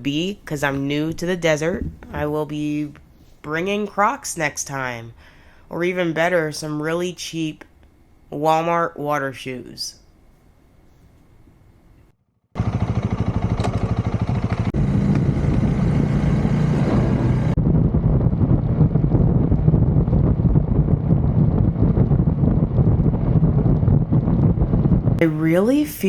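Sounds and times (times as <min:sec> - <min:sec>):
motorcycle engine running: 0:12.6 - 0:25.2
wind on microphone: 0:14.7 - 0:25.3.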